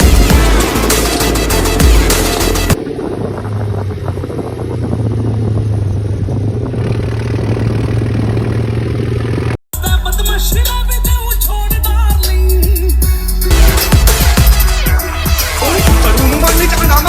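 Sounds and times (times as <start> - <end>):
tractor diesel engine running: 0.0 - 11.7.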